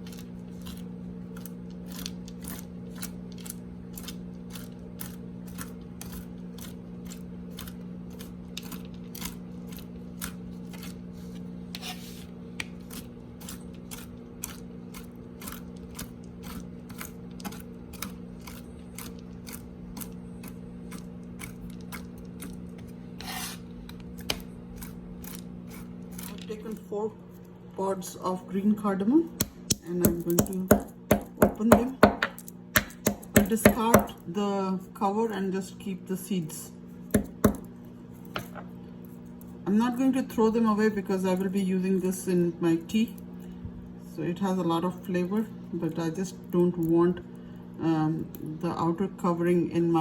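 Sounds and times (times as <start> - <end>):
microwave oven humming: 0.0 - 50.0
knife chopping nuts on board: 29.4 - 34.2, 37.1 - 37.7.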